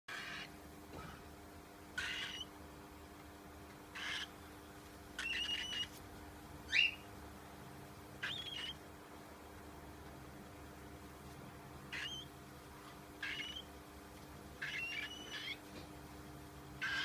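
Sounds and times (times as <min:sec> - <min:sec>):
cockatiel raspy calls: 0:00.1 - 0:00.5, 0:02.0 - 0:02.5, 0:04.0 - 0:04.3, 0:05.2 - 0:05.9, 0:08.2 - 0:08.8, 0:11.9 - 0:12.3, 0:13.2 - 0:13.7, 0:14.6 - 0:15.6, 0:16.8 - 0:17.0.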